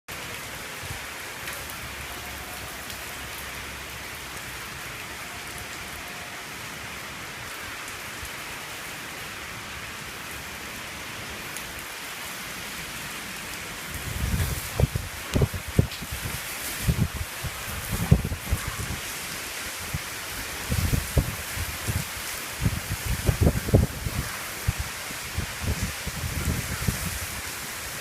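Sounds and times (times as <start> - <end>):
heavy rain hissing: 0.1 - 28.0
wind buffeting microphone: 13.9 - 28.0.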